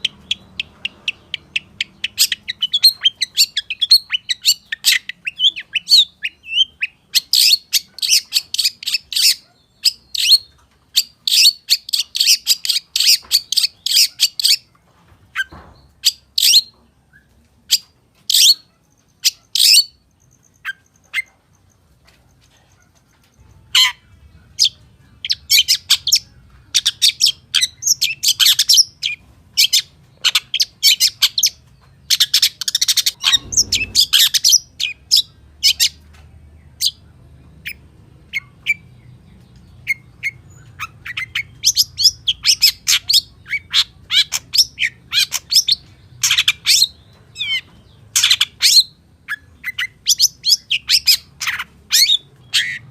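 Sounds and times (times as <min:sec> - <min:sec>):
bird chattering song: 0:00.0 - 0:14.8, 0:15.4 - 0:21.9, 0:22.5 - 0:52.9
low thumps: 0:33.2 - 0:34.6.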